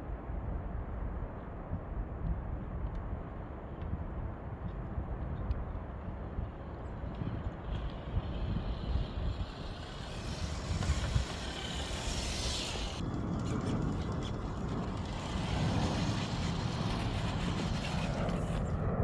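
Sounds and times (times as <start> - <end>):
highway traffic rumble: 5.0 - 19.0.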